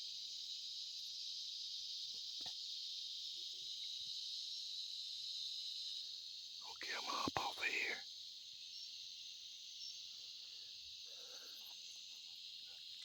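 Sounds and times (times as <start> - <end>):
crickets chirping: 0.0 - 13.0
faint ticks: 2.1 - 2.7.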